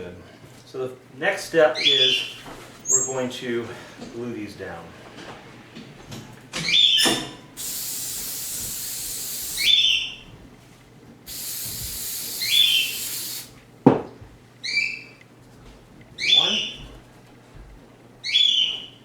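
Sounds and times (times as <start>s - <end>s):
aerosol can spraying: 7.6s - 9.8s, 11.3s - 13.6s
short squeaky chirps: 11.3s - 13.5s.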